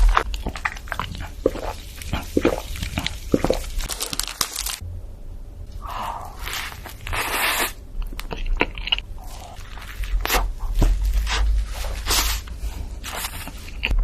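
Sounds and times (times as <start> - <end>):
crunchy food being chewed: 0.0 - 4.8, 6.3 - 14.0.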